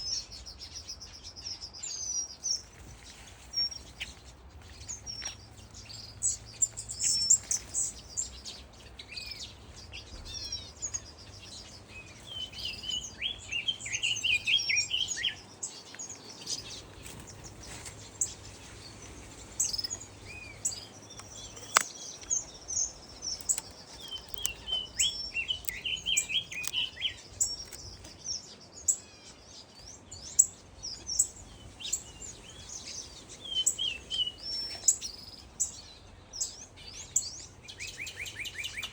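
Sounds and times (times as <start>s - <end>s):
flock of birds chirping: 0.0s - 38.9s
sharp click: 21.2s - 21.9s.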